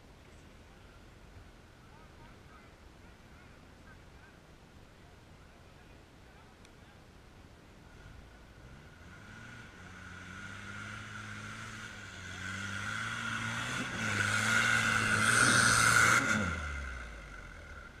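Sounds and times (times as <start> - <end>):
vehicle engine pulling under load: 8.1 - 18.0.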